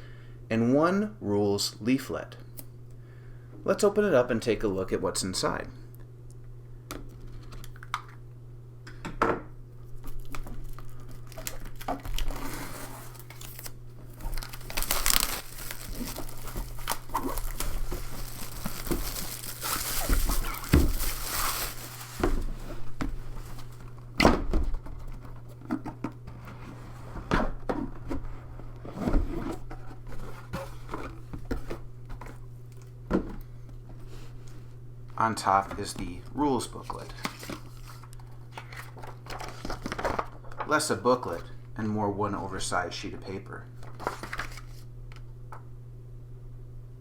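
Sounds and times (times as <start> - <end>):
plastic wrap crinkling and tearing: 9.9 - 23.9
cardboard box knocks and thuds: 15.6 - 21.3.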